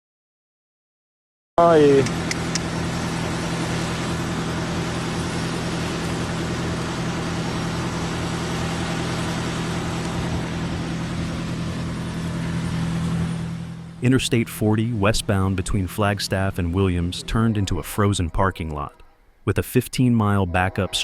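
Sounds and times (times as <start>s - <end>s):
vehicle engine idling: 1.6s - 18.0s.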